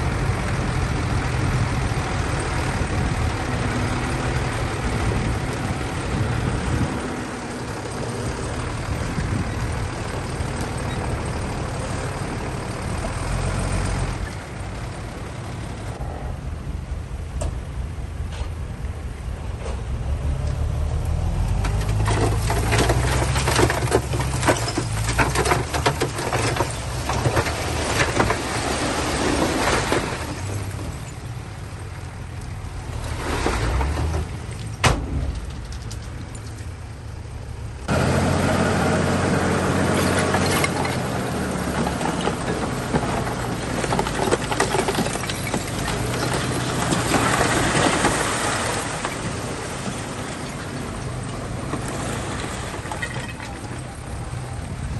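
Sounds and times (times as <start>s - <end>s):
bulldozer diesel engine: 0.0s - 54.9s
tracks clanking and rattling: 21.4s - 31.3s, 32.5s - 38.2s, 39.7s - 54.6s.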